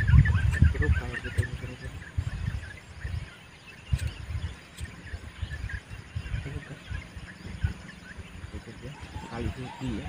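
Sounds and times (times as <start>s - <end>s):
birds chirping: 0.0s - 10.0s
sharp clicks: 3.9s - 5.0s.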